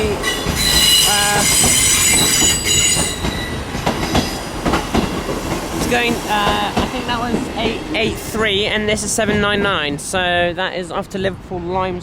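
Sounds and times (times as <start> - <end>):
train rumble: 0.0 - 12.0
train wheels squealing: 0.2 - 4.4.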